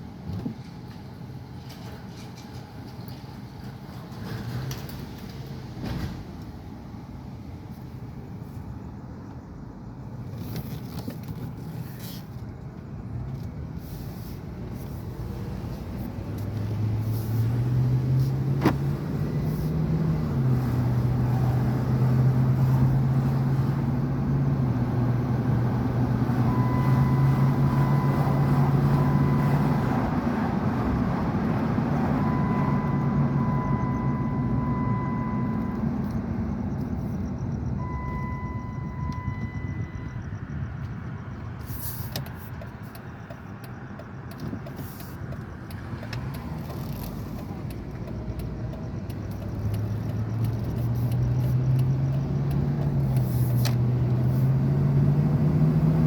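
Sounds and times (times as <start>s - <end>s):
car engine accelerating: 15.2s - 41.4s, 45.7s - 56.0s
warning tone: 26.2s - 30.1s, 32.0s - 36.2s, 37.8s - 40.4s.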